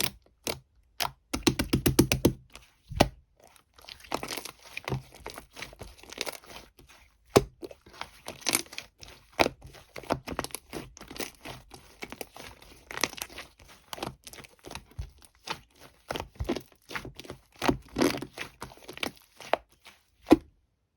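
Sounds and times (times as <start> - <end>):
slime crackling and popping: 3.7 - 20.3.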